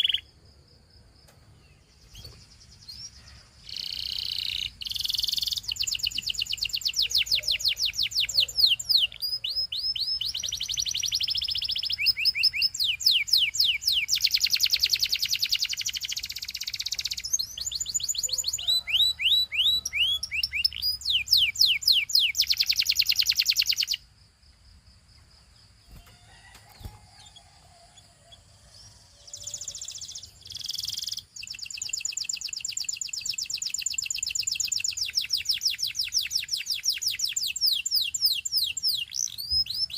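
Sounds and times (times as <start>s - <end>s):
canary singing in fast trills: 0.0s - 0.3s, 1.8s - 24.1s, 25.6s - 39.9s.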